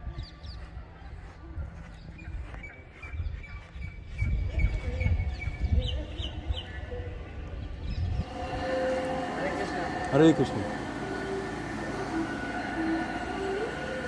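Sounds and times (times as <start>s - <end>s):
small birds chirping: 0.0s - 8.3s.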